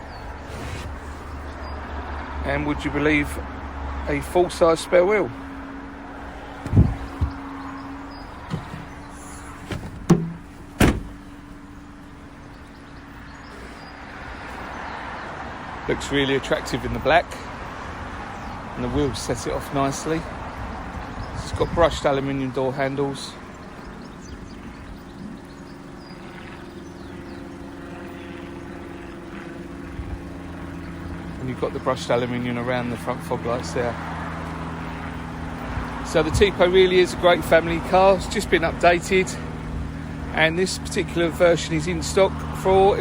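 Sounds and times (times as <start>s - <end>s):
mechanical drone with low rumble: 5.0s - 14.0s
steady low hum: 5.0s - 14.8s
car boot slamming: 6.6s - 7.4s, 8.4s - 11.4s
knocks on car boot: 9.7s - 11.1s.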